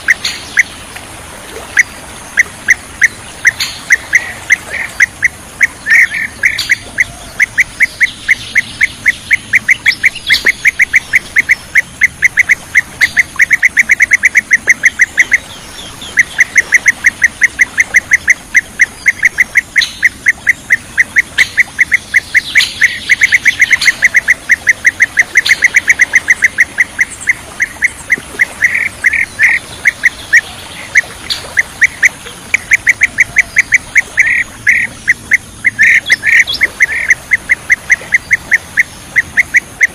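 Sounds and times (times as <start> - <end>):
bird chirping rapidly: 1.8 - 39.9.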